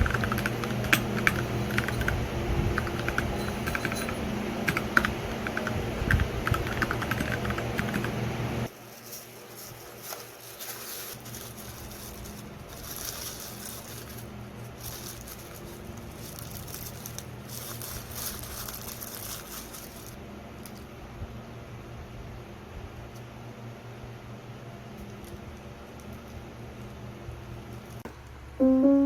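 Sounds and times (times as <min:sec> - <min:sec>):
typing on computer keyboard: 0:00.0 - 0:08.2.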